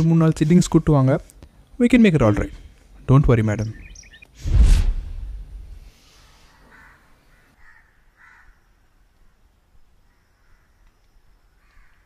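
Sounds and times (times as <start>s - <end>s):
faint bird calls: 3.6s - 4.4s, 6.0s - 12.0s.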